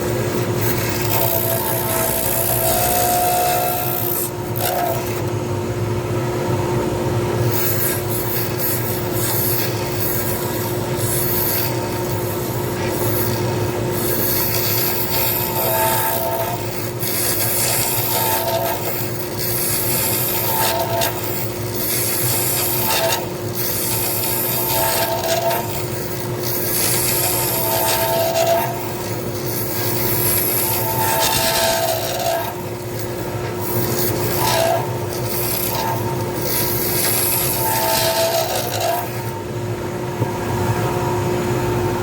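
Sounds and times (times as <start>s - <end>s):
cutting tool scraping: 0.0s - 5.3s, 7.4s - 39.4s
lathe motor spinning: 0.0s - 39.6s.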